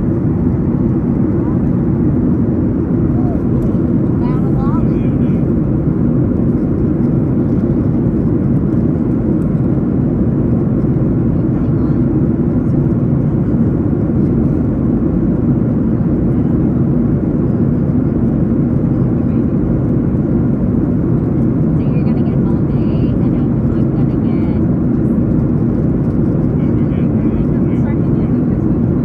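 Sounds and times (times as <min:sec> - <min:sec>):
airliner cabin drone: 0:00.0 - 0:29.0.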